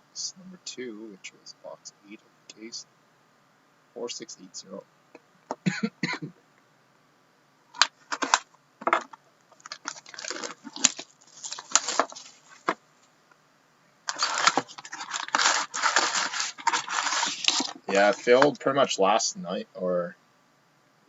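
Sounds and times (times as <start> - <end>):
wrapper crinkling and tearing: 9.6 - 12.8, 14.1 - 18.3.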